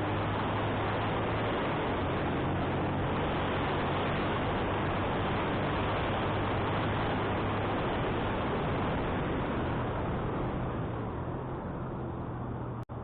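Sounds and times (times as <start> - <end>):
motorcycle engine humming: 0.0 - 13.0
wind rushing over microphone: 0.0 - 13.0.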